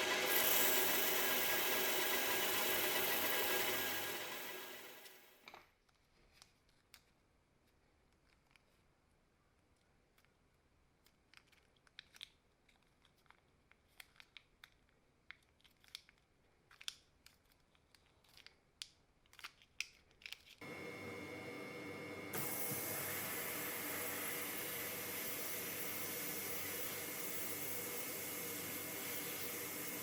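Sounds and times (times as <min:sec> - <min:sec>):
machine hum: 0:00.0 - 0:05.2, 0:20.6 - 0:30.0.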